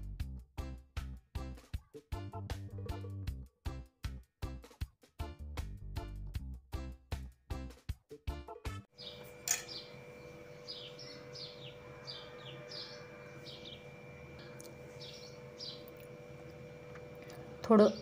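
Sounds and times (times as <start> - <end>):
faint steady hum: 9.0 - 18.0
small birds chirping: 9.0 - 18.0.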